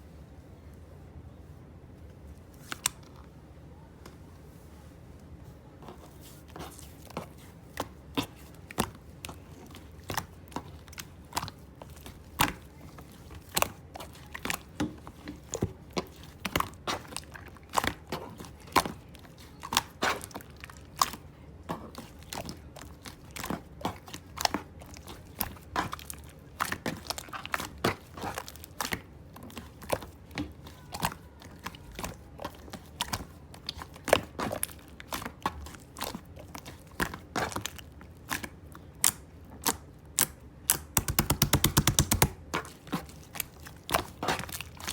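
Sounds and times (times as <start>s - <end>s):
slime squished by hand: 6.1s - 44.9s.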